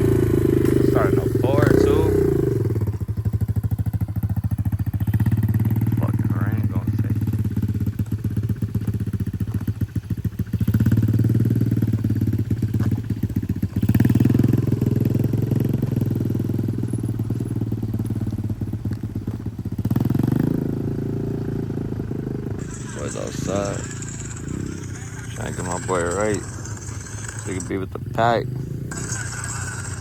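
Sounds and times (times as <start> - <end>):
pit bike engine revving: 0.0 - 30.0.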